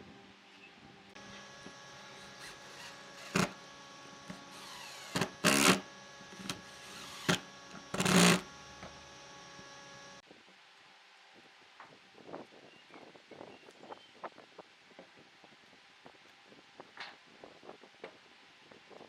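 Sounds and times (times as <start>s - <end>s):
steady mechanical hum: 0.0s - 12.8s
woodworking tool bursts: 1.2s - 10.2s.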